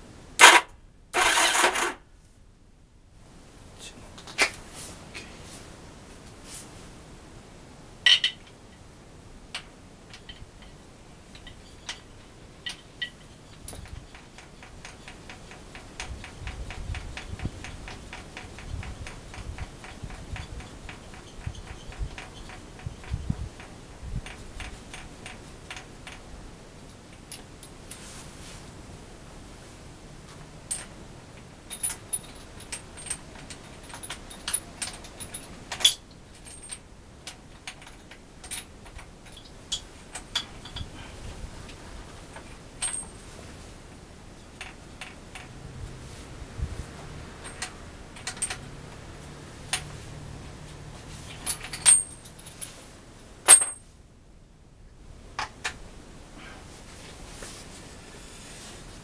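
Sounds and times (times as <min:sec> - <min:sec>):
metal objects clinking: 0:51.3 - 0:52.8, 0:53.4 - 0:53.9.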